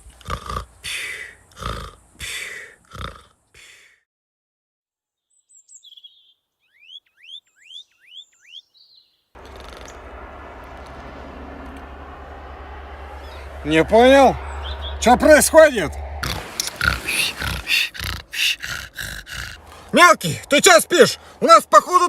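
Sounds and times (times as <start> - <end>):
small bird chirping: 5.2 - 10.1
outdoor background hum: 9.4 - 22.0.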